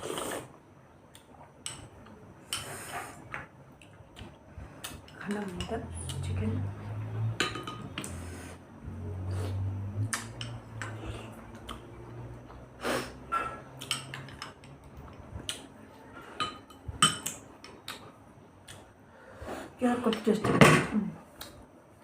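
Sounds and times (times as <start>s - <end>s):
cutlery clinking on plates: 7.4s - 8.1s.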